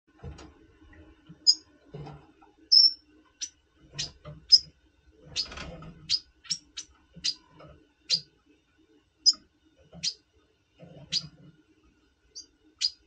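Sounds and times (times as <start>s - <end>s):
bird chirping and whistling: 2.7s - 4.6s, 6.1s - 7.4s, 12.4s - 13.0s.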